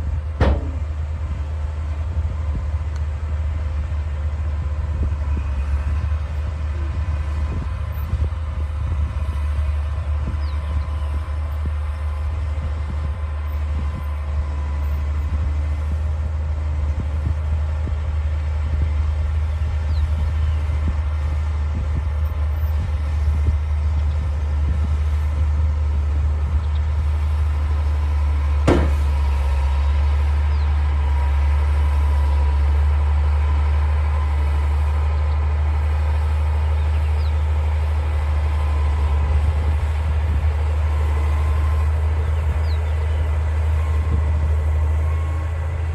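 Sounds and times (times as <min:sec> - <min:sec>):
bulldozer diesel engine running: 0:00.0 - 0:45.9
sharp knock: 0:00.4 - 0:00.8, 0:28.7 - 0:29.1.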